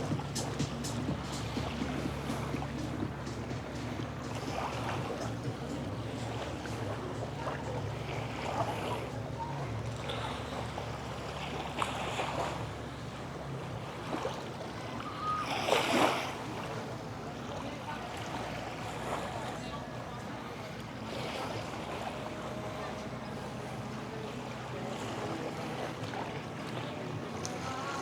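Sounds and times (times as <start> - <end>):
distant voices: 0.0 - 28.0
small waves washing: 0.0 - 28.0.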